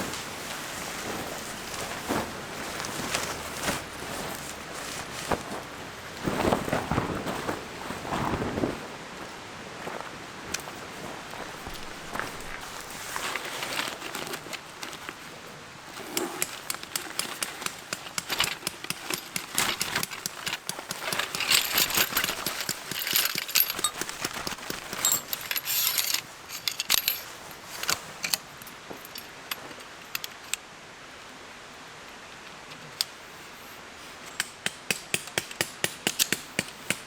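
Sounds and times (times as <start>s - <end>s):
small metal pieces clinking: 16.4s - 29.3s.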